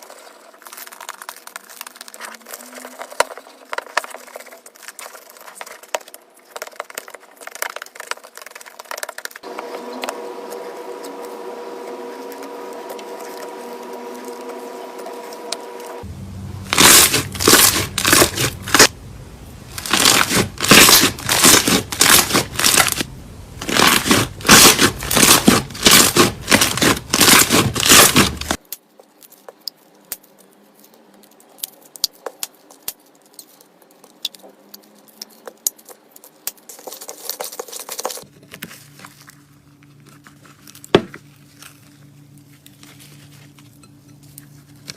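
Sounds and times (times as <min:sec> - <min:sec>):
slime crackling and popping: 0:00.0 - 0:09.5, 0:16.6 - 0:19.0, 0:19.6 - 0:38.3
faint tonal hum: 0:09.4 - 0:28.6, 0:38.2 - 0:44.9.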